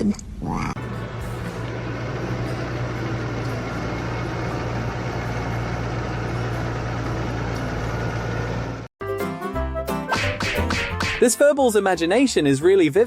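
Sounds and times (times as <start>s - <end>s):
mechanical hum and rumble: 0.0s - 8.9s.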